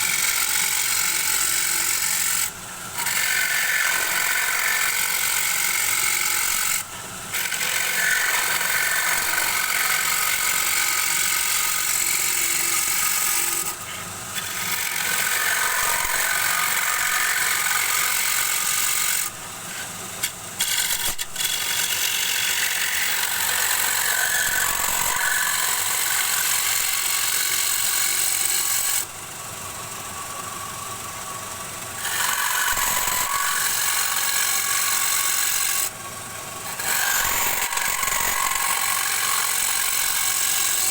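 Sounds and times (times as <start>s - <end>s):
lathe tool scraping wood: 0.0s - 29.1s, 32.0s - 40.9s.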